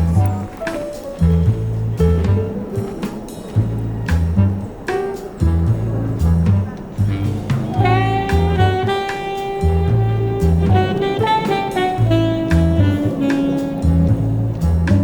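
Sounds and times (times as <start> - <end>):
bass line: 0.0 - 0.6, 1.2 - 2.7, 3.5 - 4.8, 5.4 - 15.0
drums: 0.0 - 15.0
saxophone long held notes: 5.5 - 15.0.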